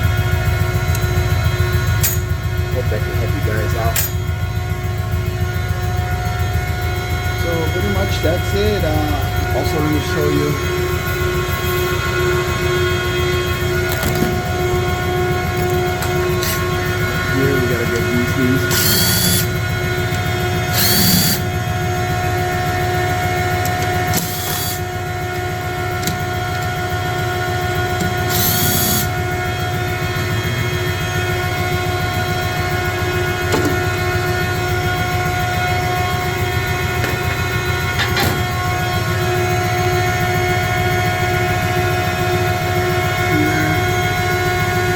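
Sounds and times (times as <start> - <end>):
heavy machinery rumble: 0.0 - 44.9.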